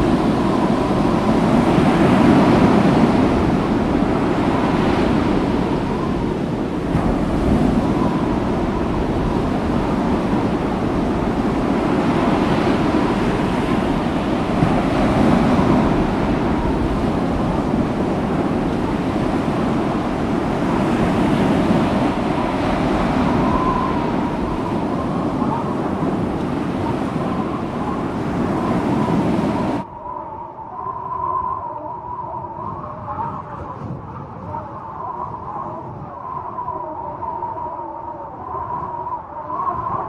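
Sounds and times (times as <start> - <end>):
steady rushing noise: 0.0 - 29.9.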